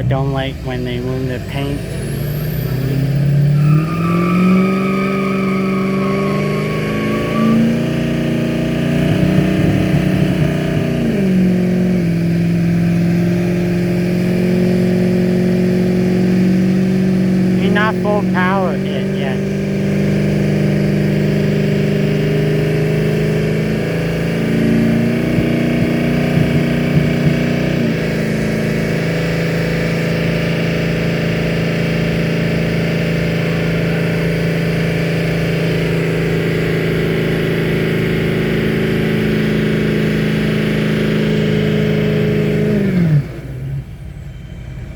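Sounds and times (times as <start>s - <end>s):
truck engine at high revs: 0.0s - 44.2s.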